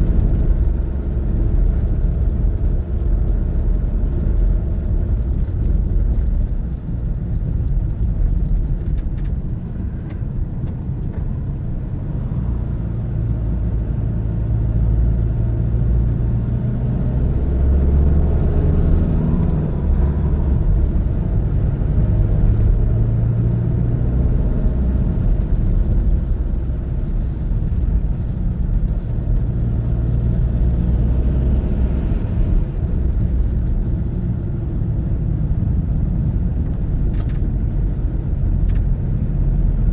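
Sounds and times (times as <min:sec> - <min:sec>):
car engine: 0:00.0 - 0:39.9
road rumble: 0:00.0 - 0:39.9.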